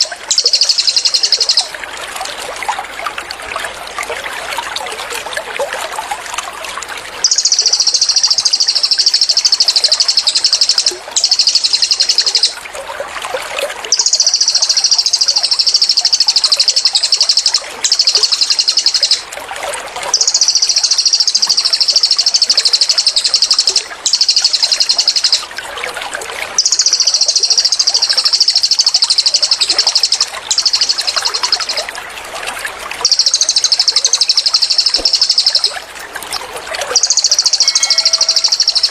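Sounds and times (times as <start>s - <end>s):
songbird rapid trill: 0.0s - 1.8s, 7.2s - 12.6s, 13.9s - 19.3s, 20.1s - 25.5s, 26.6s - 31.9s, 33.0s - 35.8s, 36.8s - 38.9s
trickling water: 0.0s - 38.9s.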